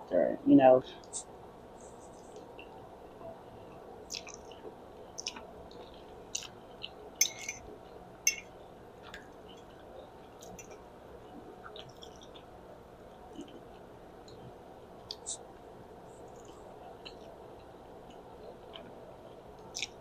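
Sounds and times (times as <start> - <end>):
wet chewing and mouth smacks: 4.1 - 4.6, 5.2 - 7.5, 11.6 - 12.5, 19.6 - 20.0.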